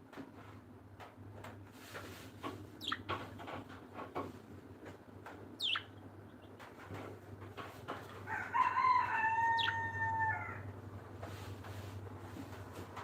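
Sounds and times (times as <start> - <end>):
faint chirps and clicks: 2.8 - 3.2, 5.2 - 6.7
bird downward-sweeping calls: 5.6 - 5.9.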